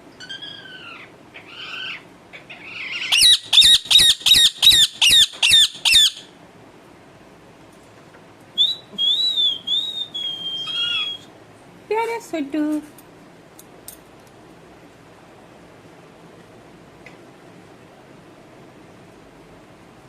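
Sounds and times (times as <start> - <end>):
parrot whistled call: 0.2 - 2.0, 2.6 - 6.3, 8.6 - 11.3
parrot squawking and screeching: 0.2 - 6.3, 9.0 - 11.3.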